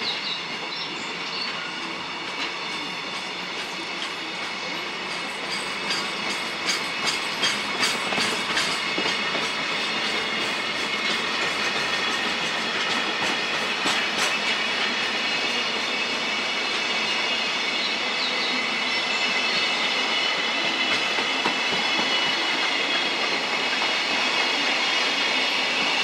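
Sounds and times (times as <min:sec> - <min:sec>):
train wheels clacking over rail joints: 0:02.2 - 0:16.0, 0:20.3 - 0:26.0.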